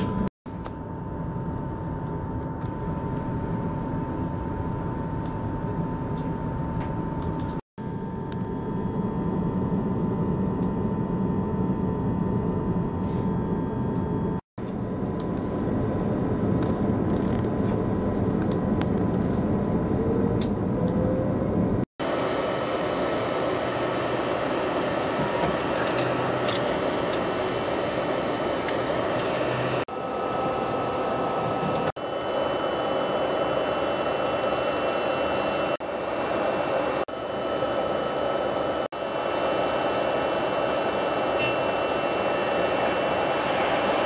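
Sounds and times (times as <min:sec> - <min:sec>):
train carriage running noise: 0:15.0 - 0:35.7, 0:38.5 - 0:44.0.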